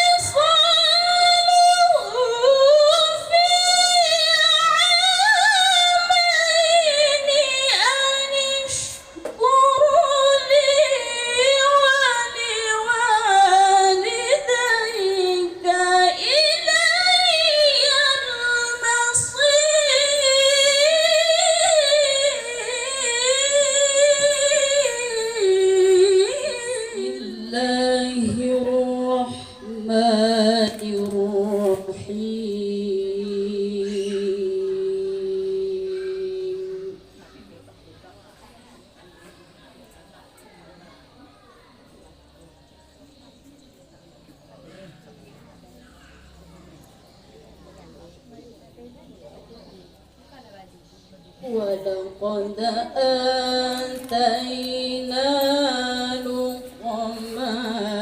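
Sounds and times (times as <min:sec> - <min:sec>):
woman reciting melodically: 0:00.0 - 0:37.5, 0:51.0 - 0:58.0.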